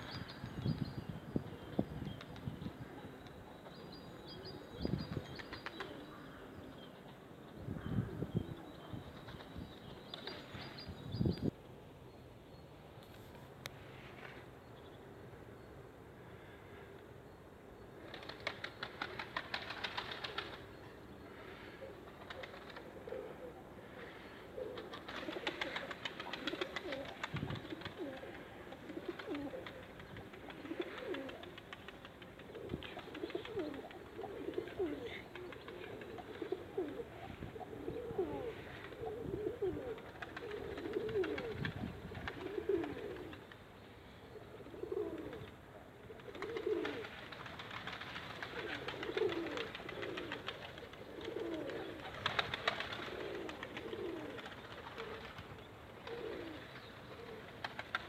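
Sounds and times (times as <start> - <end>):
pigeons cooing: 21.3 - 43.5, 44.3 - 58.0.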